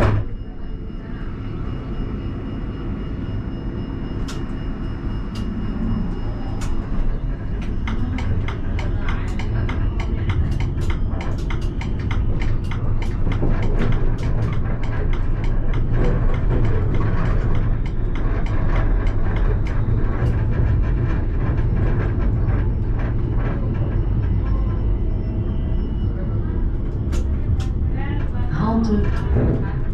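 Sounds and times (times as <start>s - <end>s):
tram rumbling on rails: 0.0s - 29.9s
sharp clicks and rattles: 6.6s - 24.9s.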